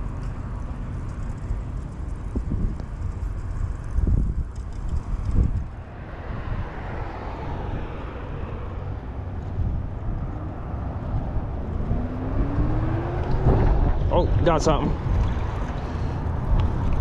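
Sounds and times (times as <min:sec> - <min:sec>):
road traffic rumble: 0:00.0 - 0:17.0
wind buffeting microphone: 0:01.6 - 0:17.0
engine tone rising: 0:05.6 - 0:17.0.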